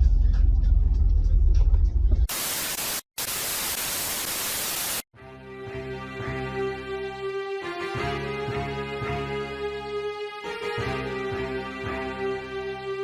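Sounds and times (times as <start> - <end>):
music: 0.0 - 2.3, 5.2 - 13.0
static hiss effect: 2.3 - 5.1.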